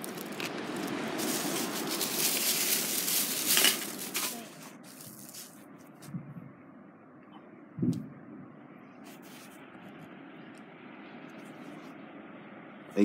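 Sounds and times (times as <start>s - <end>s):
sea waves washing in: 0.0s - 4.2s.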